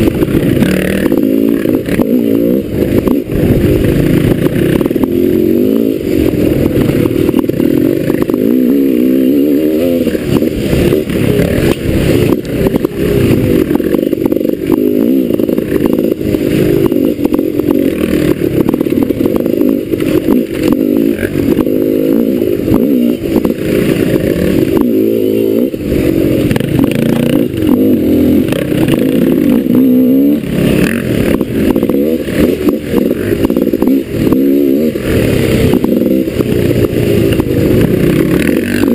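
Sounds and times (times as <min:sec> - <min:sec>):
dirt bike engine revving: 0:00.0 - 0:38.9
clatter and knocks over rough ground: 0:10.1 - 0:21.8, 0:30.7 - 0:38.9.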